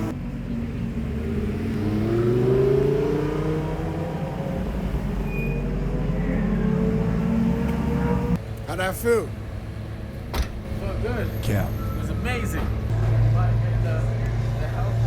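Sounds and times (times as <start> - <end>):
sports car engine accelerating: 0.0 - 8.4.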